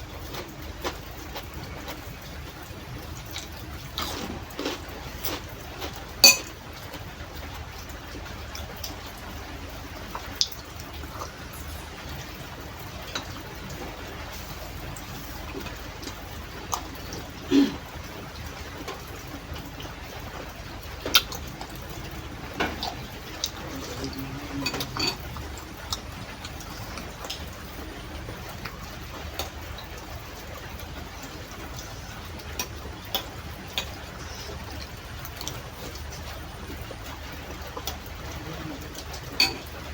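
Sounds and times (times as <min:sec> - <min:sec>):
low background noise: 0:00.0 - 0:39.9
eating crunches and clicks: 0:03.2 - 0:06.1
spoon clinking against bowl: 0:06.2 - 0:06.5.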